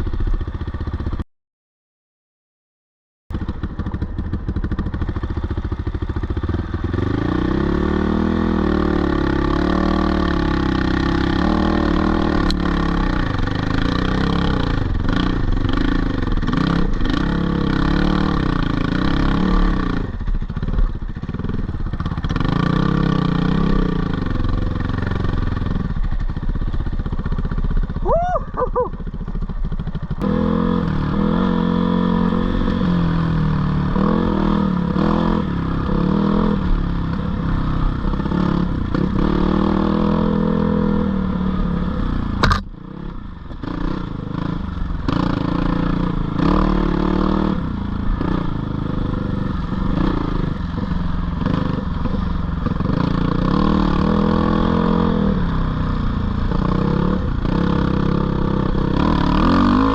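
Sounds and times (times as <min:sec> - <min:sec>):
dirt bike engine revving: 0:04.6 - 0:26.3, 0:27.0 - 0:59.9
sharp crack: 0:42.4 - 0:42.7.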